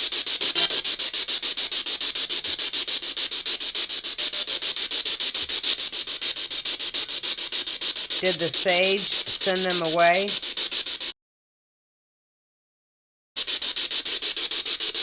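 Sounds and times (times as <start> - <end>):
pulsing radio static: 0.0 - 11.1
faint radio sound: 8.2 - 10.4.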